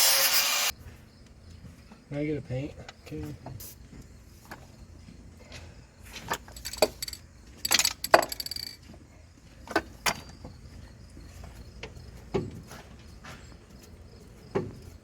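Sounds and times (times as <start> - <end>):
metal tools clanking and rattling: 6.1 - 9.0.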